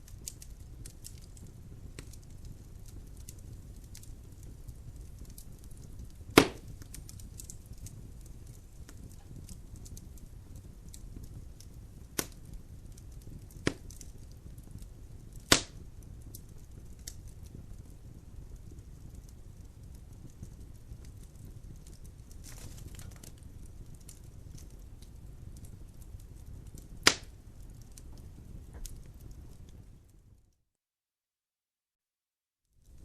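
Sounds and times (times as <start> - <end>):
fire rumbling and crackling: 0.0 - 30.6, 32.8 - 33.0
wood popping: 5.2 - 9.6, 13.4 - 14.1, 15.4 - 15.8, 21.8 - 23.4, 26.8 - 29.7.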